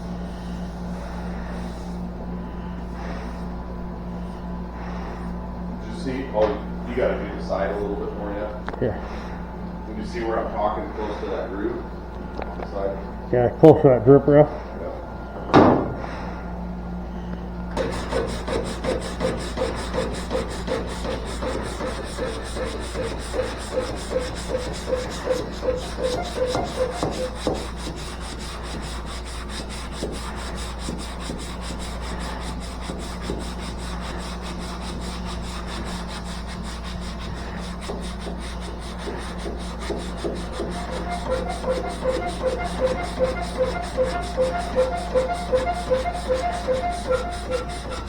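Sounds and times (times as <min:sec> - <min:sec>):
sandpaper rubbing on metal panel: 0:17.8 - 0:48.0.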